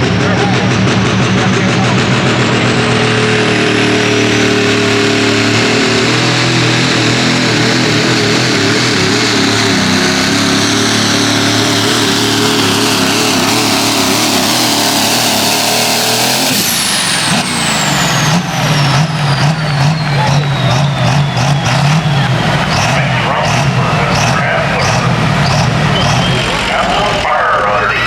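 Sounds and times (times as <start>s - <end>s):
diesel truck engine at full throttle: 0.0s - 28.0s
turbo whistle: 18.2s - 27.2s.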